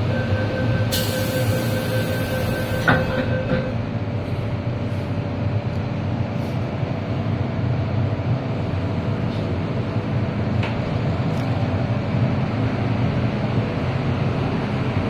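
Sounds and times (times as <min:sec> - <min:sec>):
train wheels rumbling: 0:00.0 - 0:11.1.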